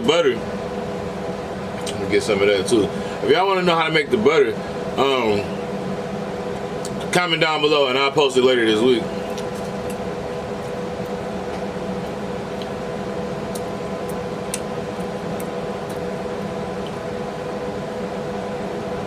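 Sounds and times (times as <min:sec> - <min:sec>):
electrical fan-like hum: 0:00.0 - 0:19.0
man chewing food: 0:09.2 - 0:17.4.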